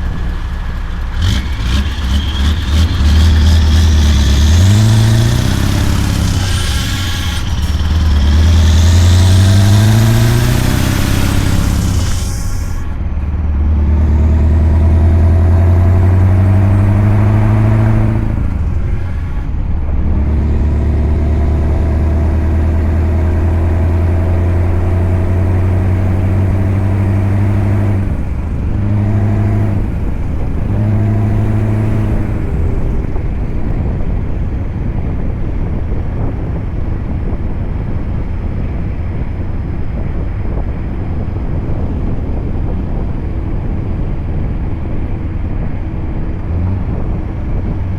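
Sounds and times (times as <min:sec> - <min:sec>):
rushing noise: 0:00.0 - 0:13.3
truck engine droning: 0:00.0 - 0:47.9.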